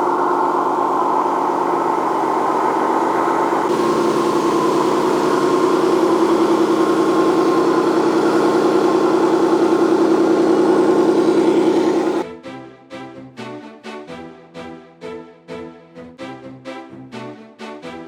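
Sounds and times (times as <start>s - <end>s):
pulsing mechanical hum: 0.0s - 12.2s
music: 12.2s - 18.0s.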